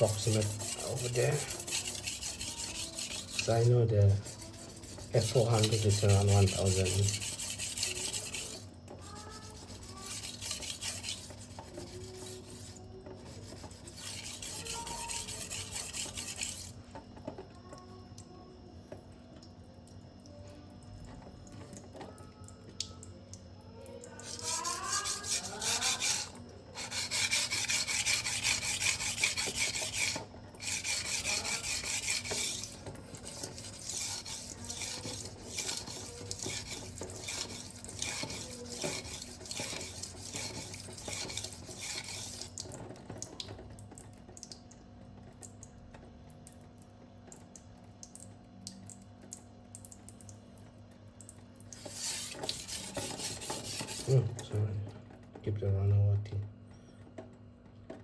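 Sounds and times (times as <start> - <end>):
knife scraping on sharpening stone: 0.0 - 3.5, 4.2 - 12.7, 13.5 - 16.7, 24.2 - 42.4.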